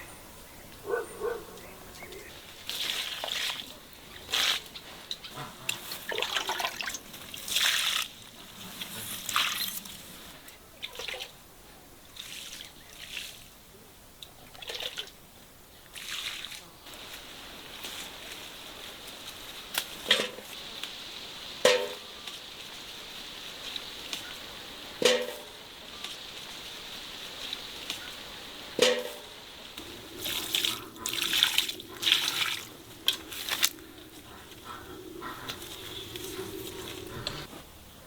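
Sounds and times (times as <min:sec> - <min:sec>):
water running and splashing: 0:02.2 - 0:11.4, 0:12.1 - 0:13.6, 0:15.8 - 0:37.5.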